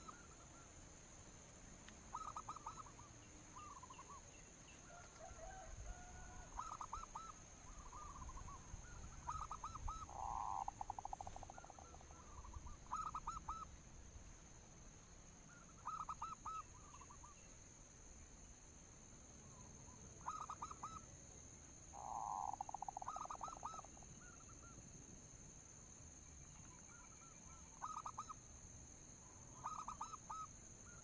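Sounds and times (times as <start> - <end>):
doves cooing: 4.9 - 13.7, 22.0 - 24.0.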